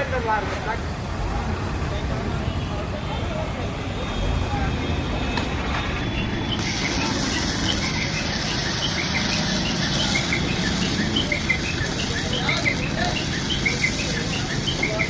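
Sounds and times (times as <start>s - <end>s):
birds chirping: 5.0s - 15.0s.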